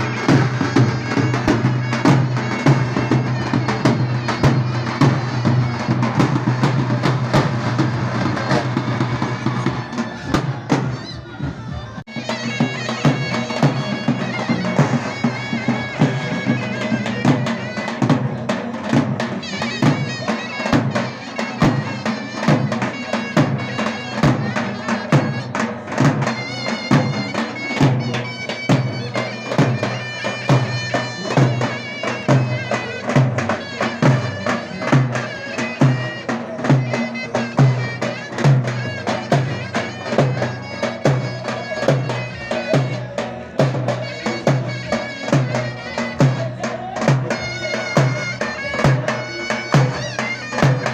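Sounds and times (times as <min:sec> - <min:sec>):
shrill reedy pipe melody: 0:00.0 - 0:11.4, 0:12.1 - 0:50.9.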